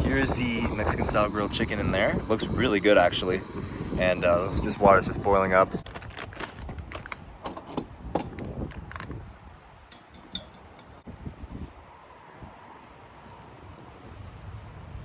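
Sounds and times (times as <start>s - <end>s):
low wind noise: 0.0s - 15.0s
cooking gear clicking and clattering: 4.5s - 9.1s, 9.9s - 11.0s.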